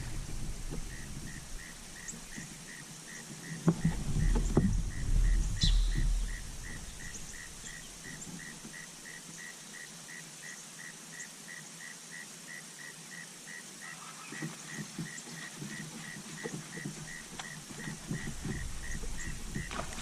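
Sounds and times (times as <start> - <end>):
low bumps and rumble: 0.0 - 2.6, 3.7 - 8.7, 17.0 - 20.0
insect chirping: 0.0 - 20.0.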